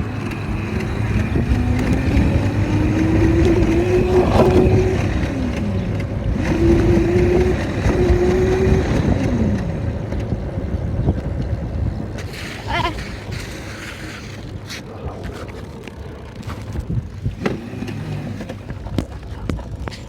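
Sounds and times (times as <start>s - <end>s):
dirt bike engine revving: 0.0s - 11.1s, 16.4s - 19.0s.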